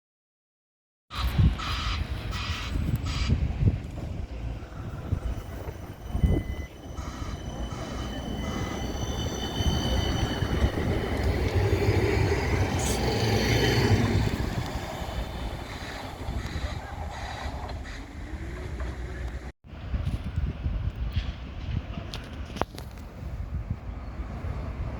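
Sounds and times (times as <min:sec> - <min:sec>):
high wheel squeal: 0:01.1 - 0:19.5
tram passing: 0:01.1 - 0:22.5, 0:23.1 - 0:24.9.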